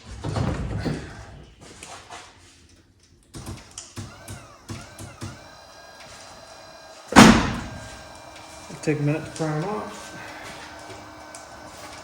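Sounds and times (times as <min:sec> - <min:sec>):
water pump gurgling and whining: 0:04.0 - 0:12.0.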